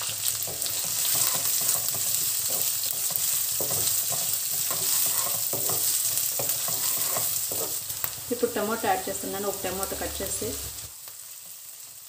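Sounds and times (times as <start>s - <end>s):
onion sizzling in hot oil: 0.0s - 12.0s
wooden spatula scraping: 0.4s - 8.0s.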